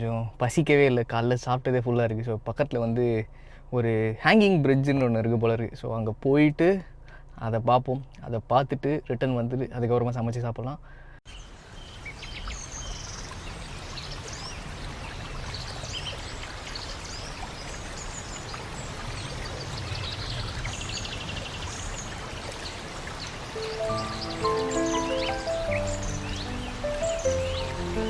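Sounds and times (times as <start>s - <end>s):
birds chirping and whistling: 23.5s - 28.0s
bird trill: 23.6s - 28.0s.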